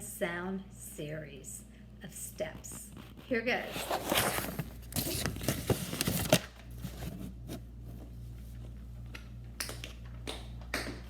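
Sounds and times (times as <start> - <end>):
steady low hum: 0.0 - 11.0
tap shoes clicking on floor: 9.6 - 11.0.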